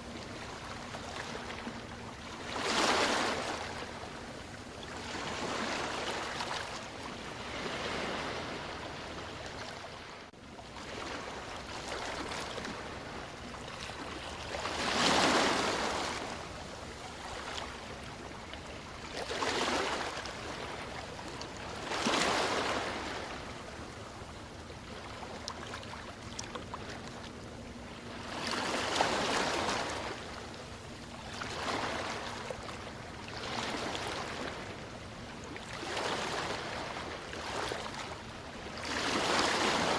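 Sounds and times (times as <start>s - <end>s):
sea waves washing in: 5.0s - 10.2s.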